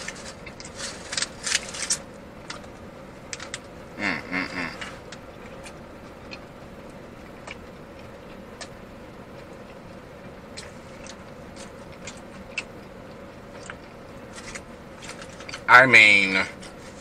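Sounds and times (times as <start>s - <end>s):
faint steady hum: 0.0s - 17.0s
wet mouth chewing sounds: 9.4s - 15.7s.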